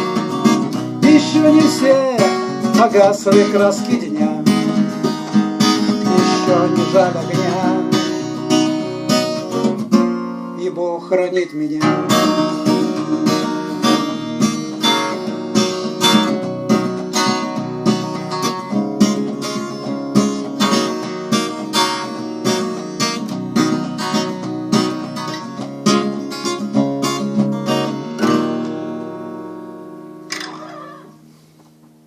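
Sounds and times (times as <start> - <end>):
acoustic guitar strummed: 0.0 - 32.0.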